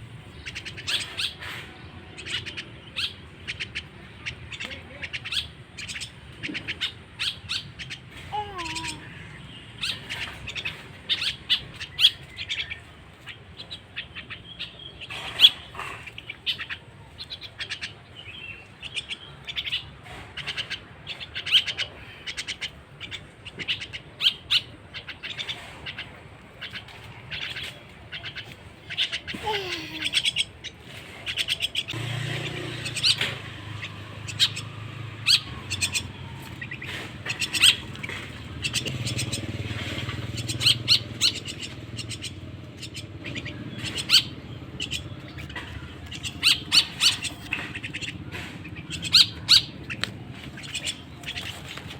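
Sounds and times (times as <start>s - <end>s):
chick harsh chirps: 18.9s - 51.7s.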